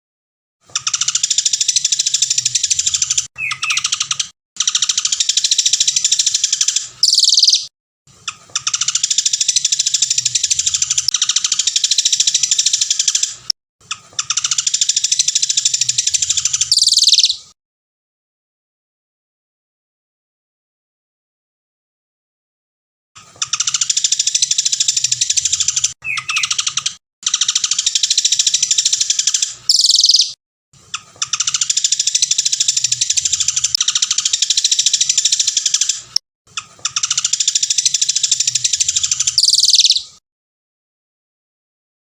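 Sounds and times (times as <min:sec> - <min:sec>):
songbird trilling: 0:00.8 - 0:07.7, 0:16.7 - 0:17.4, 0:23.6 - 0:30.4, 0:36.9 - 0:40.2.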